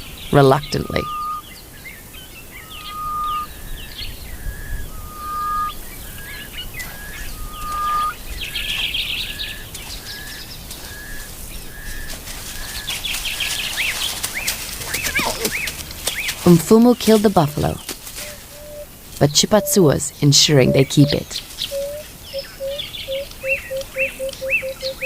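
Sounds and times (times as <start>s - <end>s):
bird chirps: 0.0s - 25.0s
short high bird notes: 0.4s - 1.4s, 2.6s - 3.5s, 4.4s - 8.2s
bird whistle: 0.6s - 1.5s, 2.6s - 12.1s, 20.6s - 25.0s.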